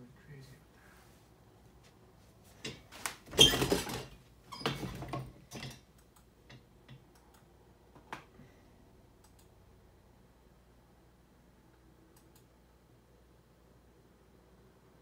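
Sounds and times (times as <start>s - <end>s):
rustling and shuffling: 0.4s - 5.4s
computer mouse clicks: 6.9s - 7.5s, 9.2s - 9.6s, 12.1s - 12.6s.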